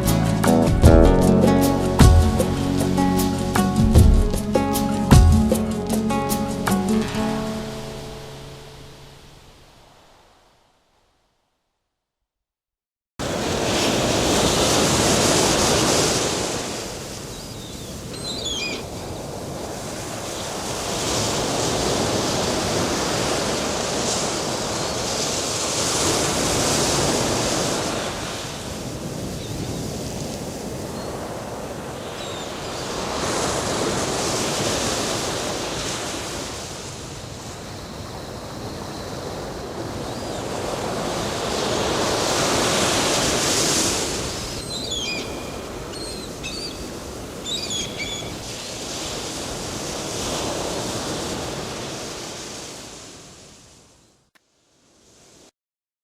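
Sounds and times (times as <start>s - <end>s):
waves washing on sandy beach: 7.0s - 10.3s, 13.2s - 53.9s.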